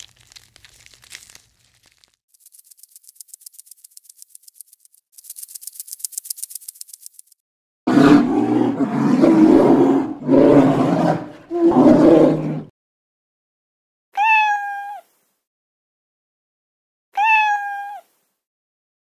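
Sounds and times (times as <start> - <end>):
polar bear growling and roaring: 7.9 - 12.7
cat meowing: 14.2 - 15.1, 17.2 - 18.1.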